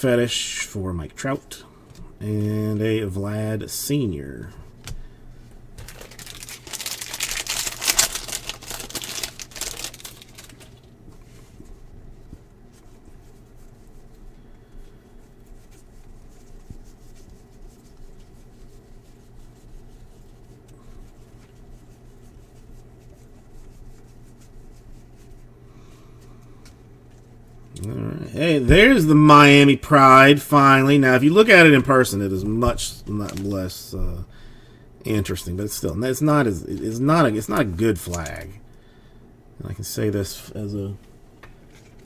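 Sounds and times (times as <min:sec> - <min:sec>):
foil wrapper tearing and crinkling: 0:05.8 - 0:11.0, 0:37.5 - 0:38.5
cards being handled: 0:05.8 - 0:11.4, 0:32.6 - 0:33.6, 0:36.6 - 0:38.6.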